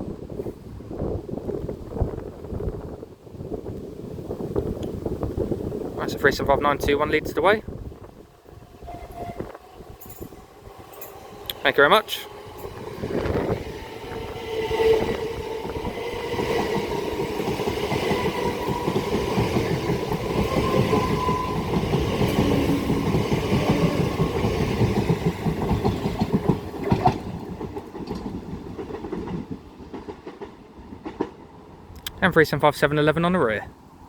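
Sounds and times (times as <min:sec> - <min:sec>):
wheels clattering on rails: 0:14.9 - 0:31.6.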